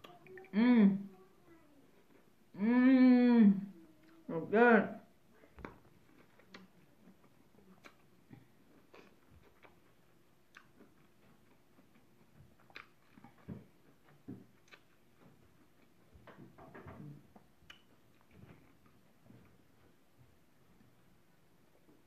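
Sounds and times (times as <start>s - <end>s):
chewing corn on the cob: 6.0s - 16.1s.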